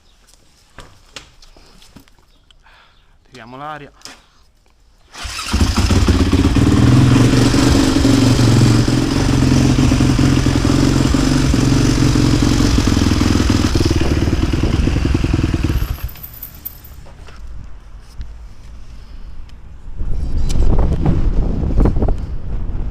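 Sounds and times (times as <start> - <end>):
motorcycle engine starting and idling: 5.1 - 16.9.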